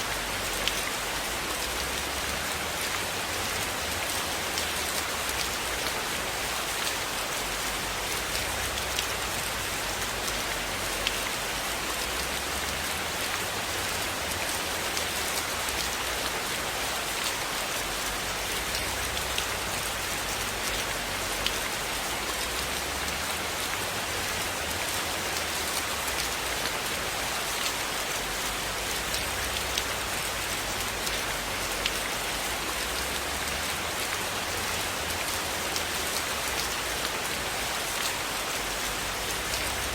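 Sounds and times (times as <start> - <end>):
steady rainfall hiss: 0.0 - 39.9
raindrops ticking: 28.8 - 39.9.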